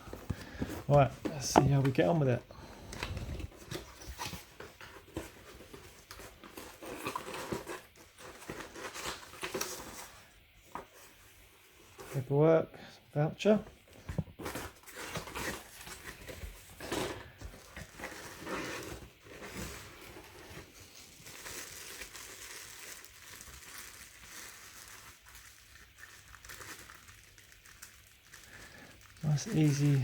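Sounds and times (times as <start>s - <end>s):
packaging crinkling: 14.6s - 30.0s.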